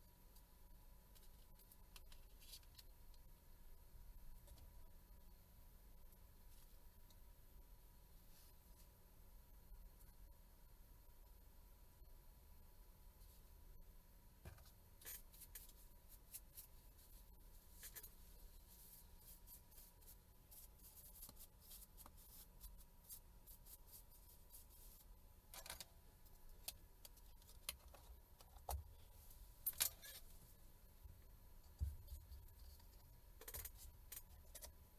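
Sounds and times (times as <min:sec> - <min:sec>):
faint steady background tone: 0:00.0 - 0:34.9
small tools clicking and scraping: 0:29.7 - 0:30.3.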